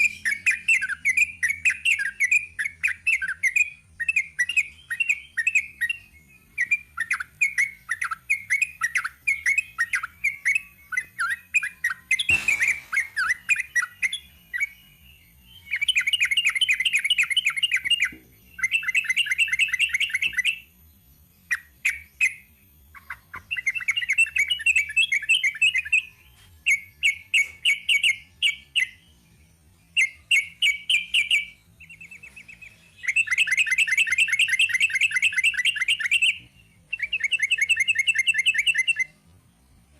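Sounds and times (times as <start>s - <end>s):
bird singing rapid trills: 0.0s - 39.2s
sharp knock: 12.3s - 13.3s.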